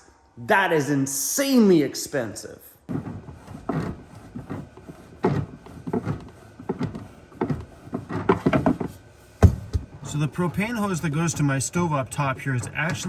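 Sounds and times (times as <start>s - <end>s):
irregular knocks and clunks: 2.9s - 10.7s.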